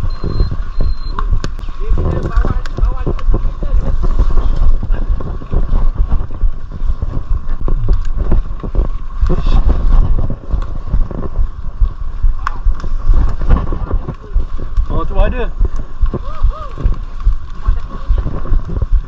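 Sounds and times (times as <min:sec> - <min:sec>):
bike rattles and knocks: 0:00.0 - 0:11.5
wind buffeting on microphone: 0:00.0 - 0:19.0.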